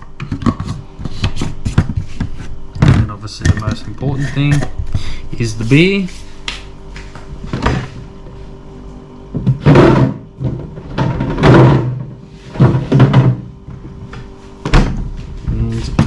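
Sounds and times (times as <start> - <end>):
kitchen thunks and clatters: 0.2 - 5.0, 9.3 - 13.9, 14.6 - 16.0.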